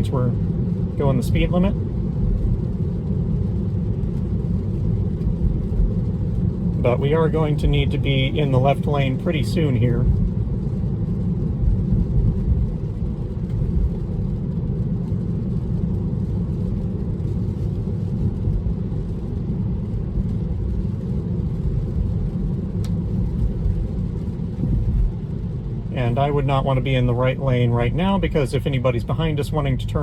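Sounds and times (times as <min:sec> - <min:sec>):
road and tyre rumble: 0:00.0 - 0:30.0
faint tick: 0:22.8 - 0:23.0.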